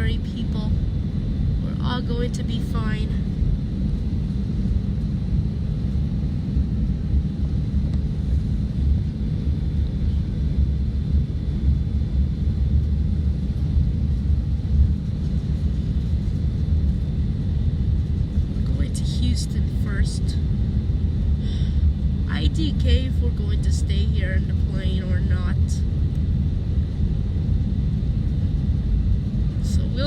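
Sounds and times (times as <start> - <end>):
jet engine and air rumble: 0.0 - 30.0.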